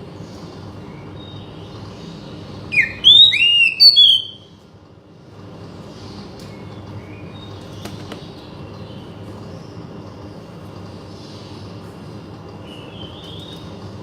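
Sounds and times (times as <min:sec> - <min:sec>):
low background hum: 0:00.0 - 0:14.0
bird singing whistles: 0:02.7 - 0:04.5.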